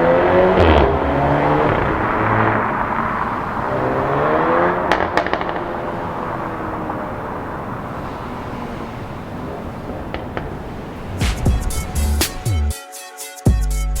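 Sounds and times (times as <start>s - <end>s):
exhaust pops and crackles: 0.0s - 7.9s, 10.1s - 12.5s
car engine rumbling: 0.0s - 12.7s.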